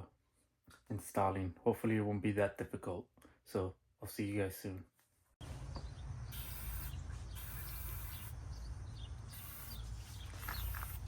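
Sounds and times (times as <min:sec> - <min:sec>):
high-pitched insect buzzing: 0:06.2 - 0:08.4, 0:09.2 - 0:11.0.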